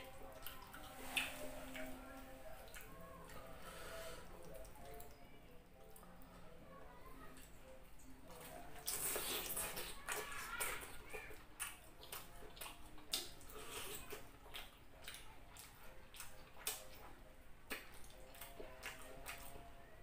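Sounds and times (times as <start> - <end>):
wet chewing smacks and clicks: 0.0 - 2.0, 2.6 - 3.5, 7.4 - 19.7.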